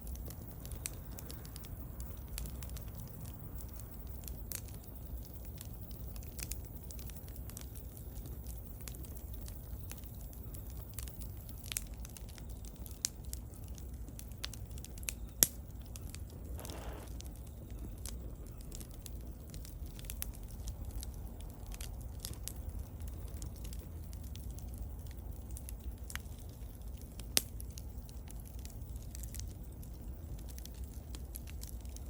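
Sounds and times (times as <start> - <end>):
bonfire crackling: 0.0 - 32.0
sharp fire pops: 0.0 - 32.0
low steady rumble: 10.2 - 32.0
brief hiss: 16.5 - 17.2.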